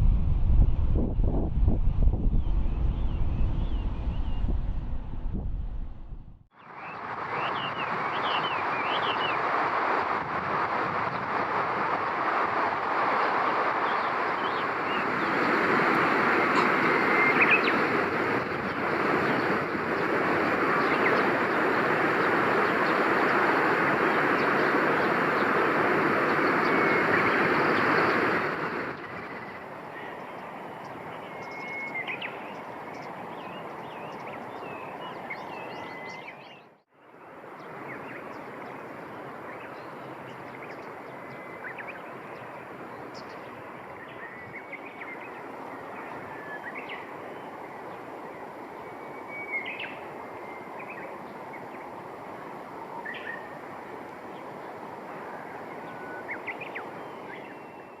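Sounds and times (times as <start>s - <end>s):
steady rushing noise: 0.0s - 30.8s.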